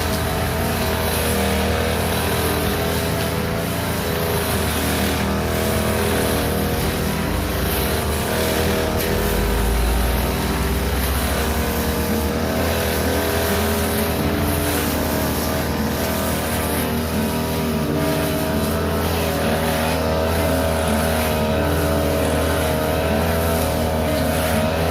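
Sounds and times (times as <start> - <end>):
grass cutter engine running: 0.0 - 24.9.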